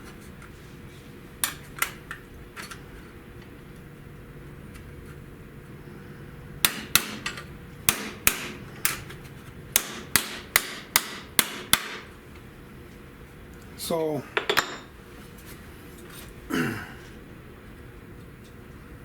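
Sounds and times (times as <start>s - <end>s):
hammer striking sheet steel: 7.9s - 8.6s.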